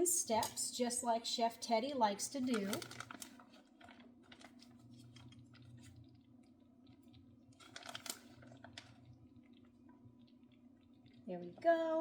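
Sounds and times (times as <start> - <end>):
shredded cheese crinkling: 2.3 - 11.3
cheese crackles: 2.3 - 12.0.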